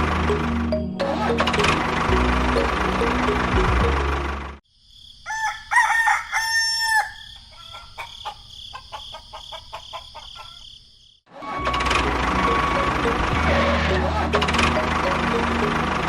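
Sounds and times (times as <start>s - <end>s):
rooster crowing: 5.2s - 10.7s
chicken clucking: 7.0s - 10.7s.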